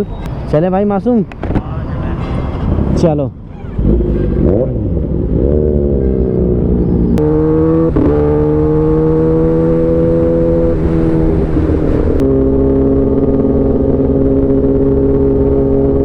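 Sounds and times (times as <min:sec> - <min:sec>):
motorcycle engine changing gears: 0:03.8 - 0:16.0.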